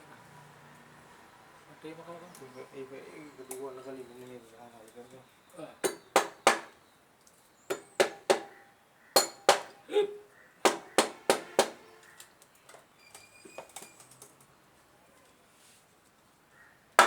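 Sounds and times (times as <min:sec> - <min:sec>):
hammer tapping on metal: 0:07.7 - 0:08.6, 0:09.2 - 0:09.8, 0:10.7 - 0:11.8.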